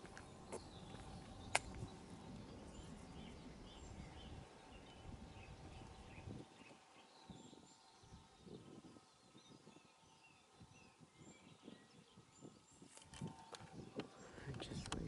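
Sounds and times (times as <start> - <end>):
faint bird chirps: 0.1 - 14.8
sharp click: 1.5 - 1.8.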